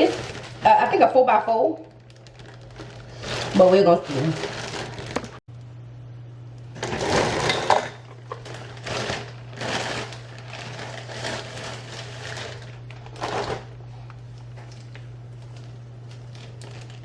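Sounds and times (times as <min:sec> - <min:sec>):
plastic packaging crinkling: 0:00.0 - 0:05.4, 0:08.2 - 0:13.8, 0:14.6 - 0:17.0
steady low hum: 0:00.0 - 0:17.0.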